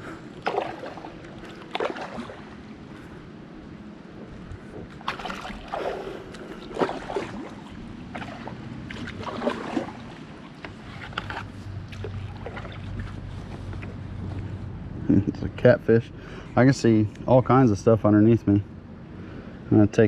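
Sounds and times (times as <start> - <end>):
paddle splashes and drips: 0.4 - 2.7, 4.9 - 13.7.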